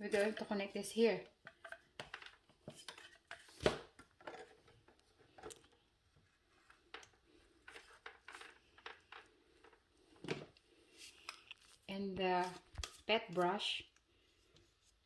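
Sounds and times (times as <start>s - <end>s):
plastic parts clicking and knocking: 1.3s - 5.9s, 6.7s - 10.6s.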